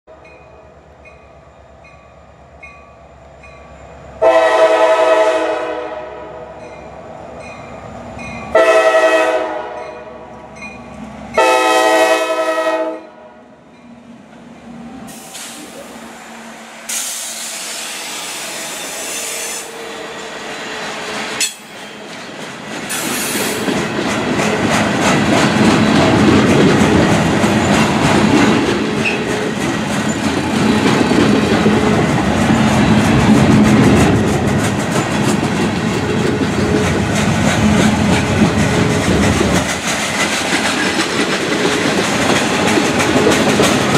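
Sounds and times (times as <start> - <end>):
train air horn: 4.2 - 6.6, 8.5 - 10.2, 11.4 - 13.4, 16.8 - 20.4
freight cars rumbling and clattering: 19.9 - 43.9.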